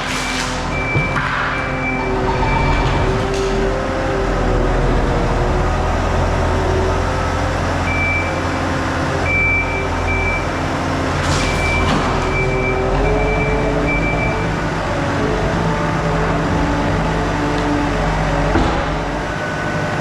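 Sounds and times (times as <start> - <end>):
reversing beeper: 0.0 - 3.7, 7.8 - 8.5, 9.2 - 10.6, 11.4 - 14.6
loader engine running under load: 0.0 - 20.0.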